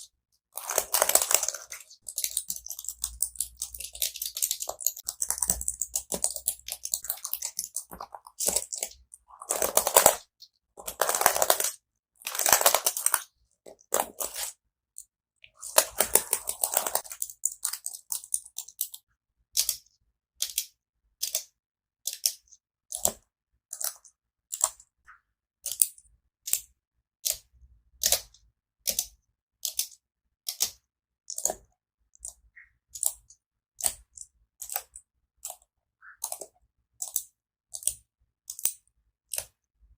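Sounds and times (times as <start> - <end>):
keyboard keys clicking: 0.6 - 10.2, 10.8 - 11.7, 15.6 - 19.0.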